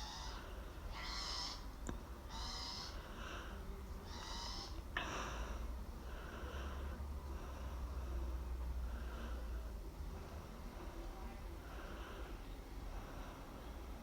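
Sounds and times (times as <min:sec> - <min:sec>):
high-pitched bird call: 0:00.0 - 0:01.7, 0:02.3 - 0:03.0, 0:04.1 - 0:04.8.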